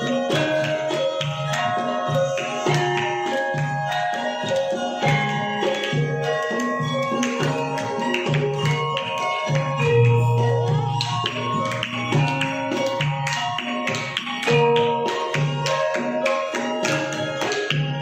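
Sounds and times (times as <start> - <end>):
metallophones ringing: 0.0 - 18.0
hand drum strokes: 7.2 - 16.2.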